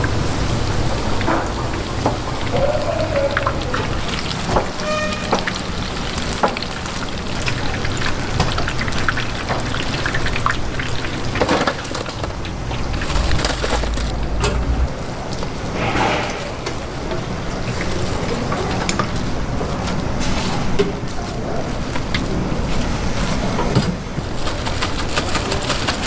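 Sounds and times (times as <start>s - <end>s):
crackling sizzle of frying: 0.0s - 26.0s
brief tone: 4.8s - 5.4s.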